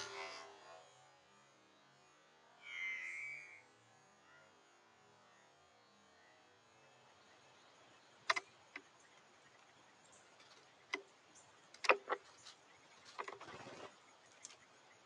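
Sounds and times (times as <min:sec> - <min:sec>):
sharp taps and clicks: 0:11.7 - 0:12.2
scrabbling patter: 0:11.8 - 0:14.6.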